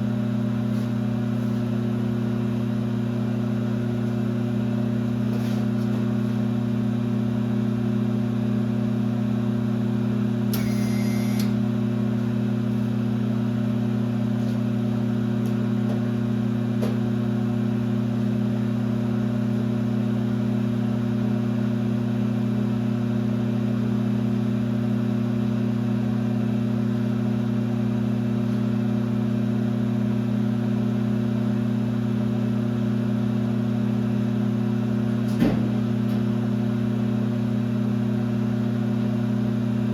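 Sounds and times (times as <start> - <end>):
lathe motor and gearbox hum: 0.0 - 9.0, 9.9 - 20.2
brief high-pitched whine: 10.5 - 11.6.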